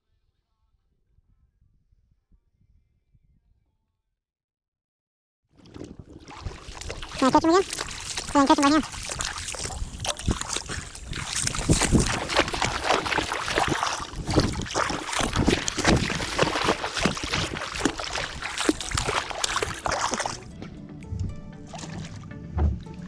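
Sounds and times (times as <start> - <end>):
water splashing and sloshing: 5.6 - 23.0.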